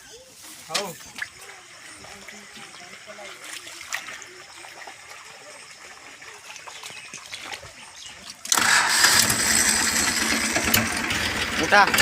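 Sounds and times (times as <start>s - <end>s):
tractor diesel engine throbbing: 8.5s - 12.0s.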